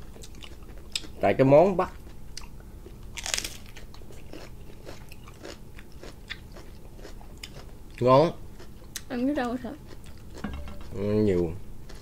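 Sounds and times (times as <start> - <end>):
soft crunchy chewing: 0.0 - 1.2, 1.8 - 12.0
sharp crunch of biting: 3.2 - 7.6.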